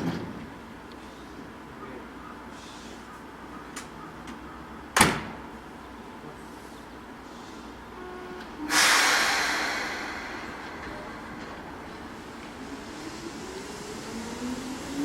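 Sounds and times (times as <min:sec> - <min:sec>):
low hum of stopped train: 0:00.0 - 0:15.0
train doors shutting with thud: 0:03.7 - 0:05.6, 0:08.4 - 0:15.0.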